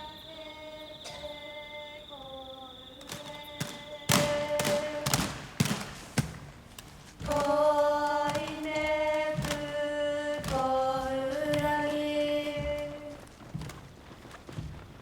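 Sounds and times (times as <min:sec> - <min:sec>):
person singing sustained notes: 0:00.0 - 0:05.3.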